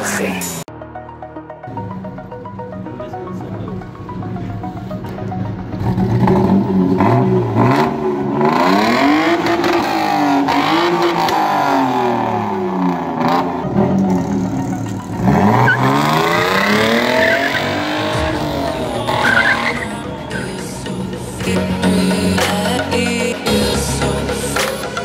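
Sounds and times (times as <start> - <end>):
car engine revving: 1.7 - 25.0.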